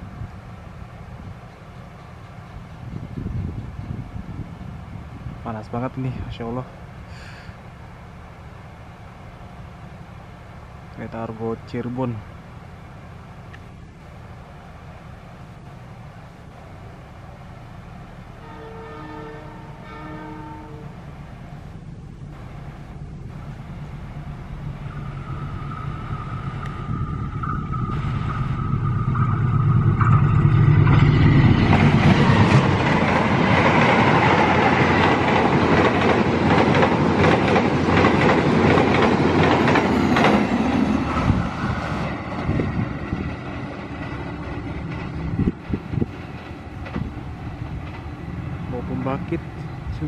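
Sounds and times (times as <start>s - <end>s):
locomotive engine rumble: 0.0s - 50.0s
train horn chord: 18.4s - 21.0s
train wheels clattering: 24.6s - 48.4s.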